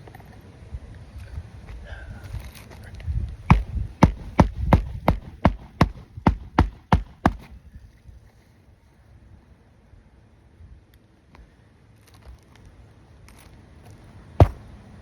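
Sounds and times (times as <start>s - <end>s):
hammer striking shingle roof: 3.5s - 7.5s, 14.4s - 14.8s.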